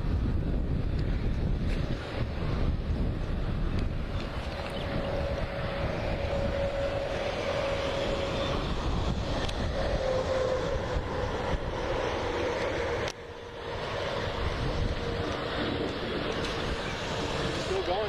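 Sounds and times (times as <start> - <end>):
wind buffeting microphone: 0.0 - 18.0
distant warning siren: 4.1 - 18.0.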